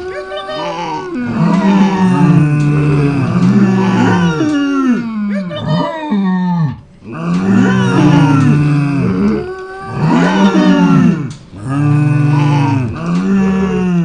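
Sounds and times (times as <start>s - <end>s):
farm animal calling: 5.3s - 6.8s.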